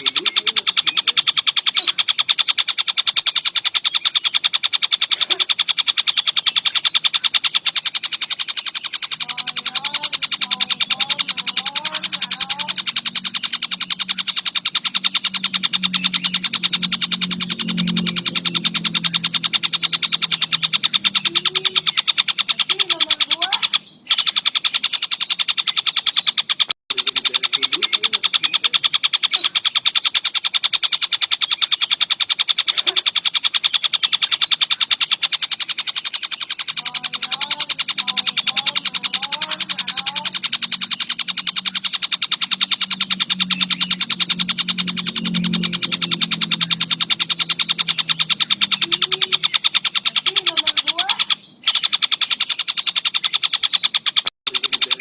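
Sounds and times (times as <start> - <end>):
faint lower chirps: 0.0 - 55.0
kingfisher rattling call: 0.0 - 55.0.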